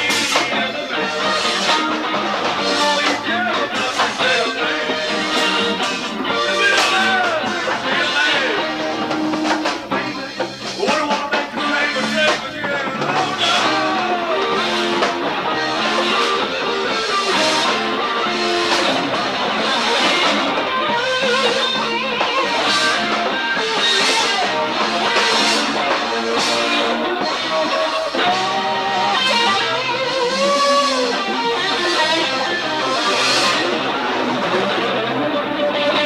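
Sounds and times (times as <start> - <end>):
bass guitar: 0.0 - 36.0
electric guitar bent notes: 0.0 - 36.0
steady drum beat: 0.0 - 36.0.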